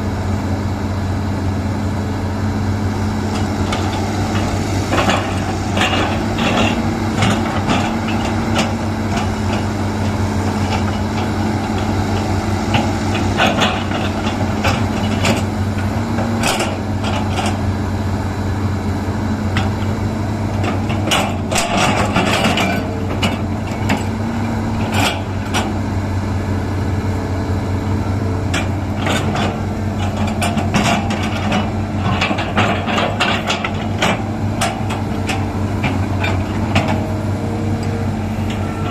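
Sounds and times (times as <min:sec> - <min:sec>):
excavator diesel engine running: 0:00.0 - 0:38.9
clanks and knocks of digging gear: 0:19.6 - 0:25.8.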